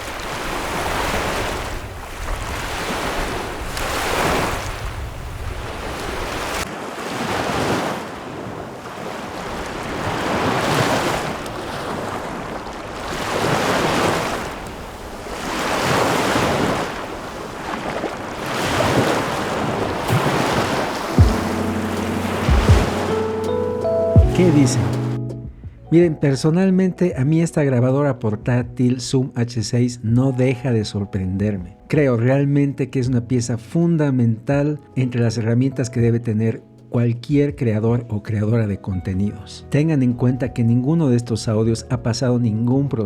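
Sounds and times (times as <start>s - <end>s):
wind rumble on microphone: 0.0s - 6.6s
lake waves washing onto shore: 0.0s - 25.2s.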